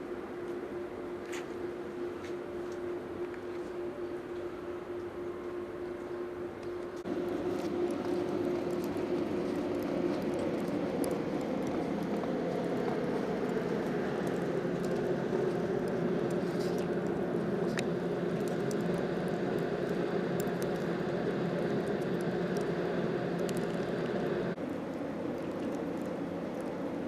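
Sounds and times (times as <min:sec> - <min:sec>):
road traffic hum: 0:07.0 - 0:27.0.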